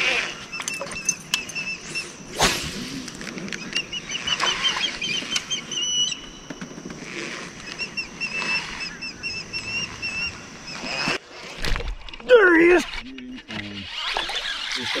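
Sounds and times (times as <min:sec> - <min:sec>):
bird chirping: 0:00.0 - 0:02.4, 0:03.5 - 0:06.8, 0:07.6 - 0:11.2.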